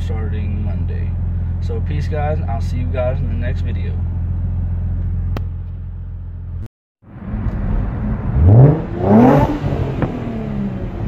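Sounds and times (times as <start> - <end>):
car engine idling: 0.0 - 6.7
engine revving: 7.1 - 11.0.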